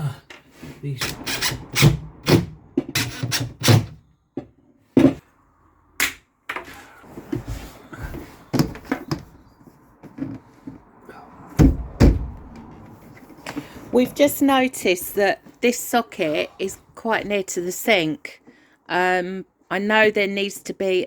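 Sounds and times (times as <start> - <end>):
sharp knocks and clunks: 1.0 - 5.3, 11.5 - 12.9.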